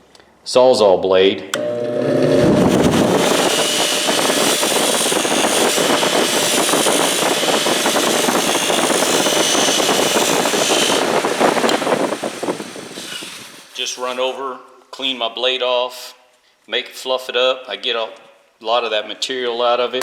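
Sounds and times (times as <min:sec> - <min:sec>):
saw blade scraping buffing wheel: 0:01.6 - 0:14.4.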